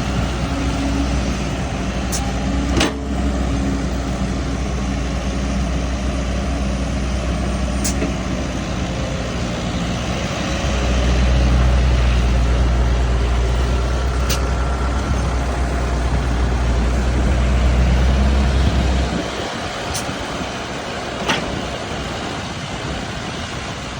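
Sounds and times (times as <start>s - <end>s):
engine running with deep hum: 0.0s - 23.9s.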